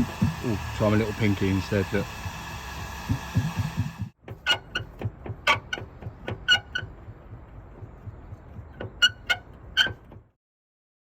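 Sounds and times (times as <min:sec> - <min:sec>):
metal body panel clicking: 0:04.2 - 0:10.3.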